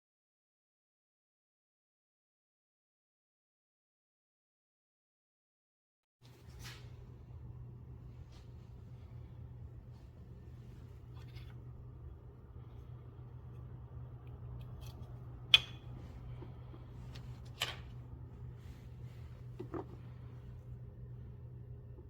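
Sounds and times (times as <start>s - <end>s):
steady low hum: 6.2s - 22.0s.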